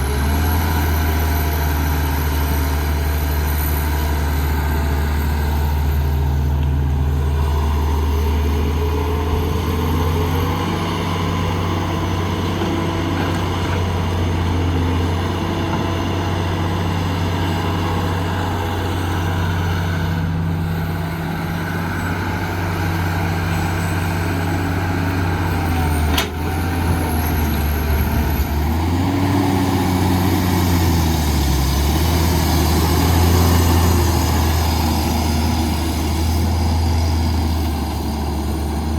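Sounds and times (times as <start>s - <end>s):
heavy diesel engine under load: 0.0s - 38.9s.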